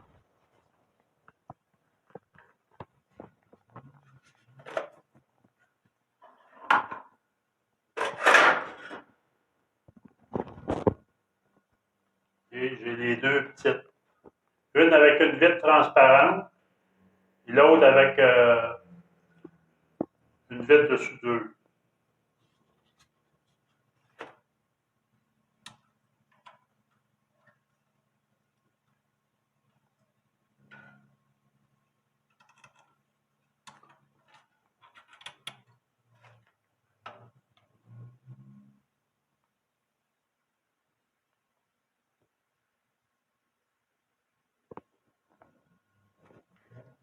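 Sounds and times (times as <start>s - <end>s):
faint clicks and taps: 0.6s - 6.0s, 44.6s - 46.7s
rubbing or scraping sounds: 2.0s - 6.9s, 8.0s - 9.1s, 22.3s - 24.4s, 33.8s - 38.8s.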